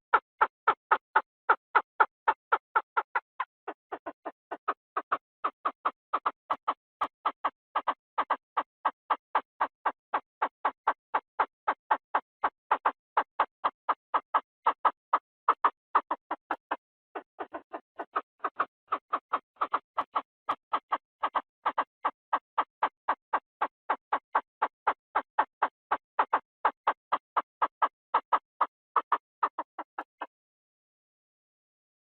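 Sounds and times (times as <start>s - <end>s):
quail calling short notes: 15.6s - 21.9s.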